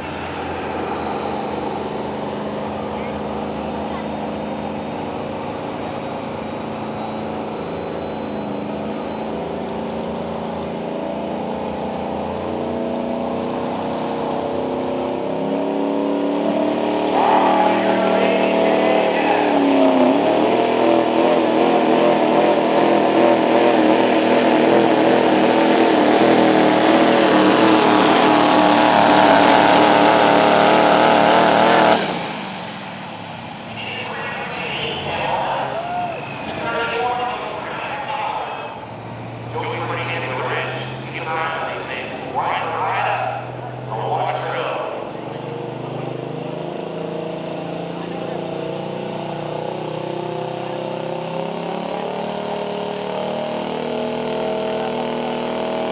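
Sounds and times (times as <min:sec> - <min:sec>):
diesel truck engine revving: 0:00.0 - 0:55.9
turbo whistle: 0:17.0 - 0:38.0.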